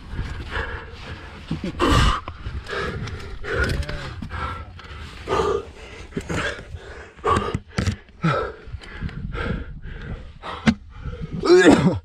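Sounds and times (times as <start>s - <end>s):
person breathing hard: 0.0s - 11.5s
person grunting with effort: 1.6s - 2.2s, 3.4s - 4.2s, 11.3s - 12.0s.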